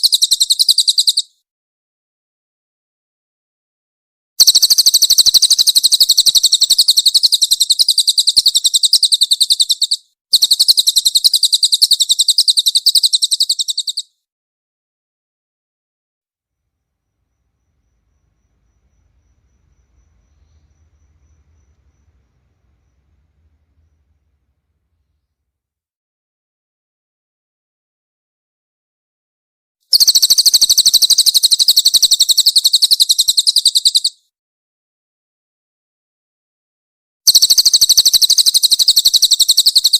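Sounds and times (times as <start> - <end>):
bird rattling chirps: 0.0 - 1.3, 4.4 - 14.1, 17.3 - 25.0, 29.9 - 34.1, 37.3 - 39.9.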